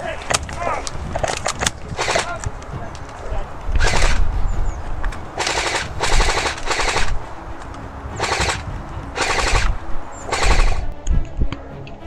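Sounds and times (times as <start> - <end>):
airsoft gun firing bursts: 1.6 - 2.4, 3.8 - 4.2, 5.4 - 7.2, 8.2 - 9.7, 10.3 - 10.9.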